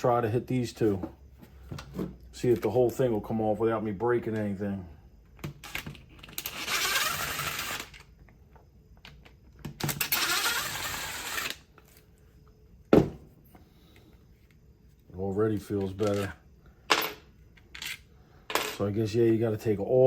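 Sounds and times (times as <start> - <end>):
power screwdriver running: 6.4 - 8.0, 9.9 - 11.6.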